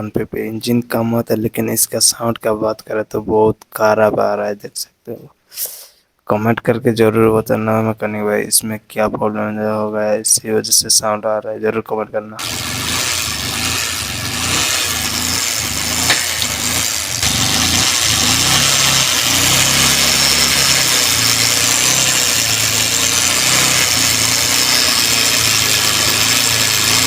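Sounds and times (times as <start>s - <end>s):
abnormal engine noise: 12.4s - 27.0s
motorcycle engine idling: 12.4s - 27.0s.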